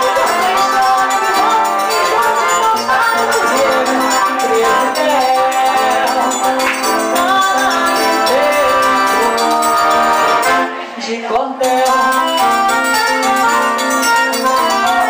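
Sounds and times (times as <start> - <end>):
drum and hand percussion: 0.0 - 10.8, 11.6 - 15.0
accordion: 0.0 - 15.0
guitar: 0.0 - 15.0
person singing: 0.0 - 15.0.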